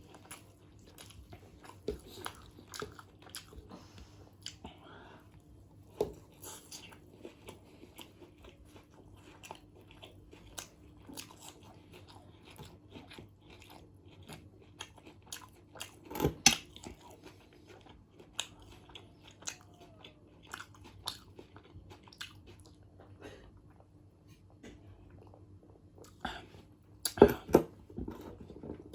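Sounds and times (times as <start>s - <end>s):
person chewing food: 0.0s - 28.9s
food crunching: 5.9s - 23.1s.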